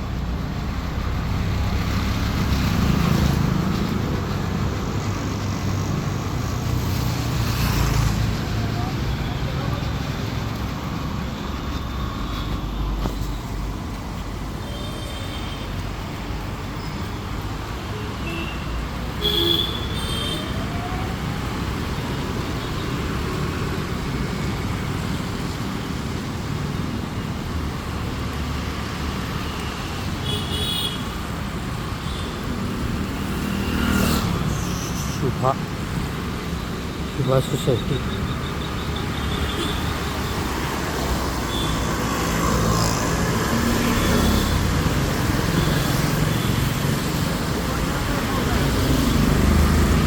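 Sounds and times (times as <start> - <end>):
road traffic passing: 0.0 - 50.0.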